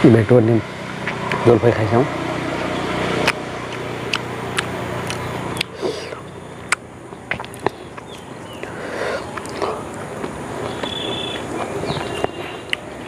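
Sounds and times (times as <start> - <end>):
chewing: 2.6 - 13.0
wet mouth clicks and lip smacks: 3.2 - 8.2, 9.3 - 11.0.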